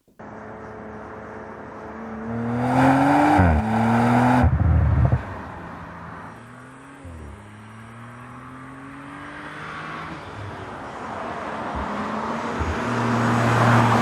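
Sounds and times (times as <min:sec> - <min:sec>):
car engine accelerating hard: 0:01.8 - 0:10.2
exhaust crackling: 0:02.3 - 0:05.7.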